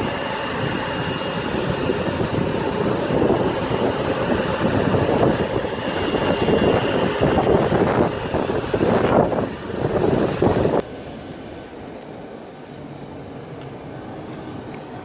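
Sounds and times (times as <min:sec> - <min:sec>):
wind buffeting microphone: 0:00.0 - 0:11.9
jet engines running: 0:00.0 - 0:15.0.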